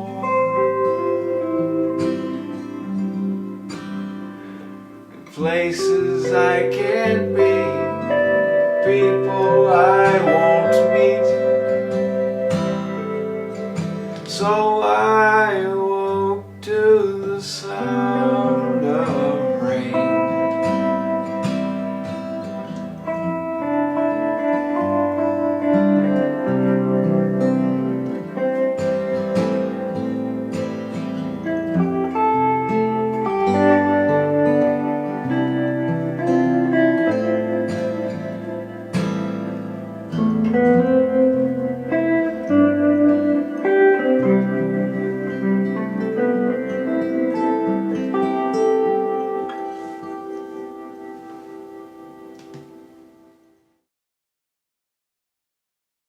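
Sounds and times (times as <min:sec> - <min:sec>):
acoustic guitar chords: 0:00.0 - 0:53.7
person singing wordless melody: 0:05.2 - 0:12.3, 0:14.0 - 0:21.0.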